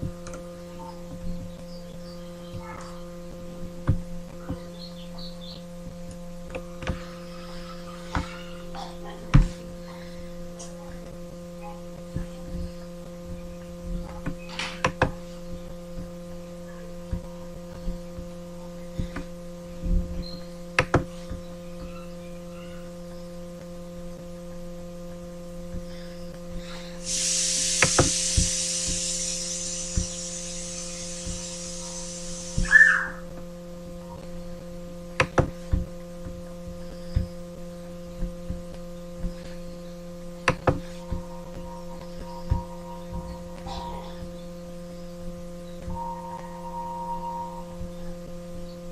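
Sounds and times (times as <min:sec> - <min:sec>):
electrical mains hum: 0:00.0 - 0:48.9
hiss: 0:27.0 - 0:33.1
short chirp: 0:27.1 - 0:33.2.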